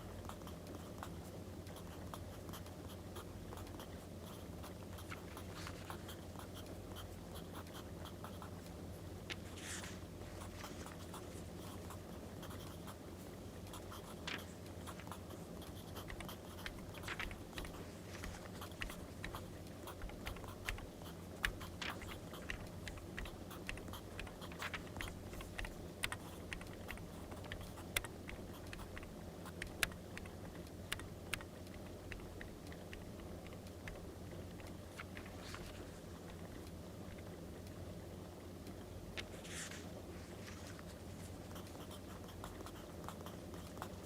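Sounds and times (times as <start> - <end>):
steady low hum: 0.0 - 44.0
pen scratching on paper: 13.7 - 30.4.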